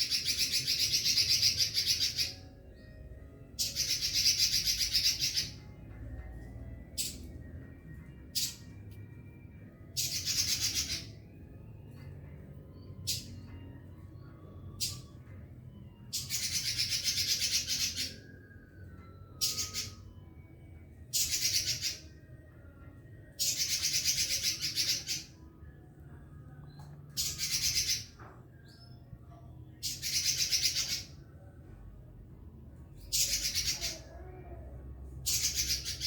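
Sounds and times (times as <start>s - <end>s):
bird singing trilling phrases: 0.0s - 8.9s, 9.6s - 31.8s, 32.7s - 36.0s.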